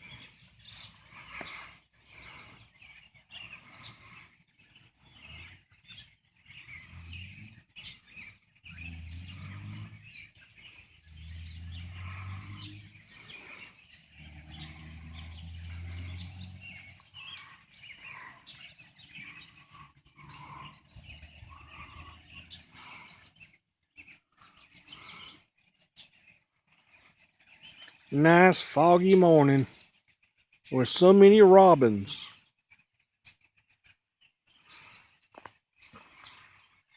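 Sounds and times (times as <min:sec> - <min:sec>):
robins chirping: 0:00.0 - 0:25.4.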